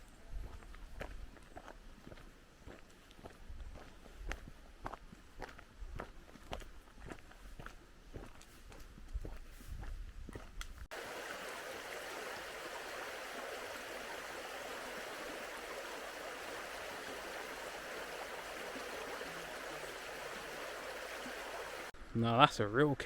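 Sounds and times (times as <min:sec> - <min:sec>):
stream water rushing over rocks: 0:10.9 - 0:22.0.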